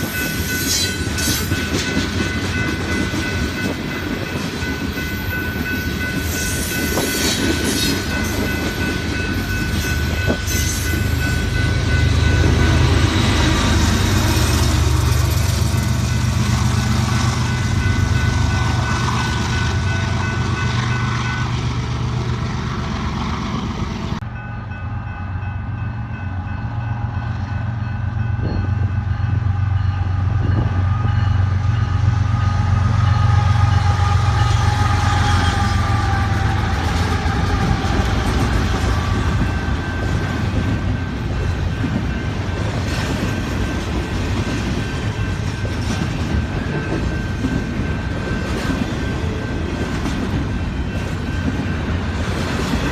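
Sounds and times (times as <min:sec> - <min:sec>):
diesel locomotive engine drone: 0:00.0 - 0:52.9.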